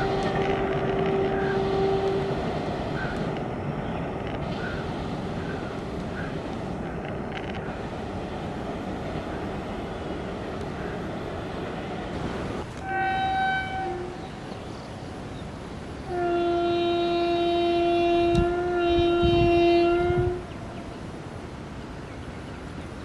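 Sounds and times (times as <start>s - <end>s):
locomotive air horn: 0.0s - 3.4s, 12.7s - 14.4s, 16.1s - 20.6s
passing train rushing: 0.0s - 23.0s.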